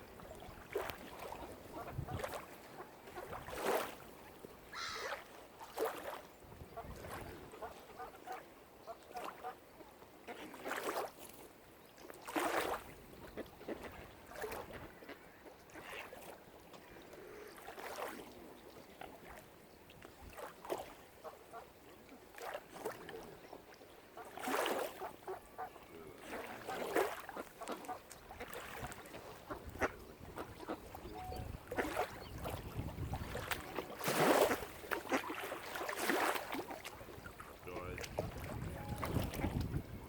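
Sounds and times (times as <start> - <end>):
waterfowl honking: 4.7 - 5.2, 25.0 - 28.6, 37.7 - 39.4.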